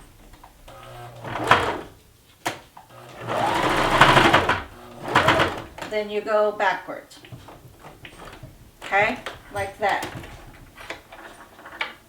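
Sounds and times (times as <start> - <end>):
sewing machine stitching: 0.0 - 2.0, 2.9 - 5.9, 7.6 - 11.9.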